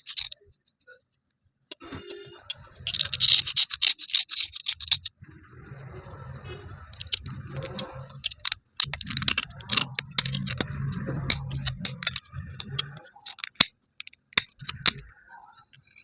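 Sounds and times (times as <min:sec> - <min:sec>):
slate pieces cracking and clicking: 0:00.0 - 0:00.4, 0:02.5 - 0:05.1, 0:06.8 - 0:16.0
low rubbing rumble: 0:05.0 - 0:13.0.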